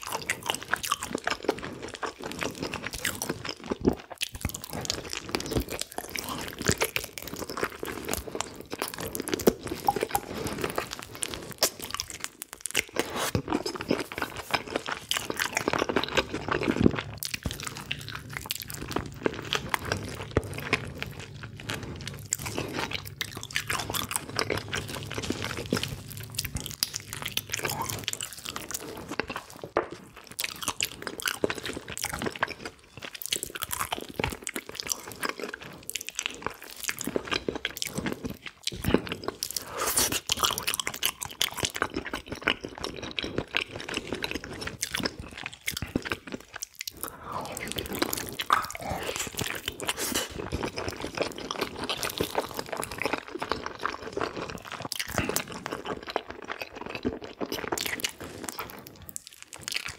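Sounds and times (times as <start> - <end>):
person chewing and smacking: 0.0 - 59.9
low steady hum: 13.6 - 33.2.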